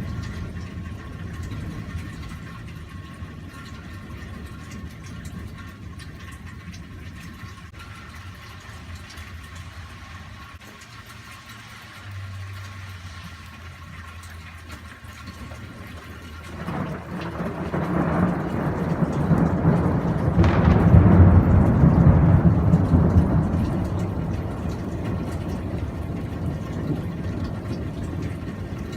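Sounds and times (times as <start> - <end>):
thunder rumbling: 0.0 - 7.6, 15.3 - 28.9
steady rain: 0.0 - 28.9.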